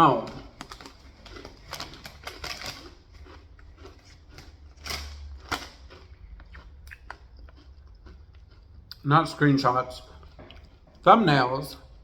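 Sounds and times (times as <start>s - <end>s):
chewing pizza: 0.0s - 12.0s
wet mouth clicks: 6.3s - 9.1s.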